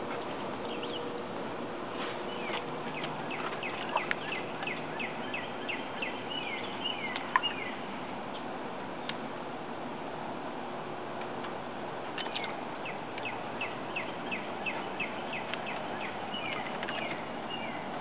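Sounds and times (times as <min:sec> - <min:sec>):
outdoor background noise: 0:00.0 - 0:18.0
songbird singing falling notes: 0:02.2 - 0:07.8, 0:12.2 - 0:17.9.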